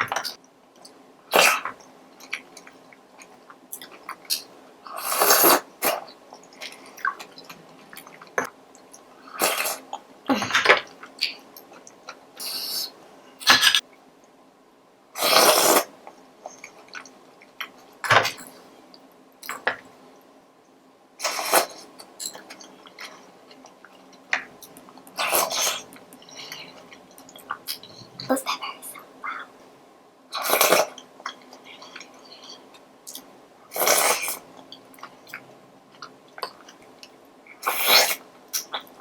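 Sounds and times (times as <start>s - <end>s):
wet slurping and munching: 15.2s - 15.9s, 24.6s - 28.3s
small mouth clicks: 24.6s - 28.0s.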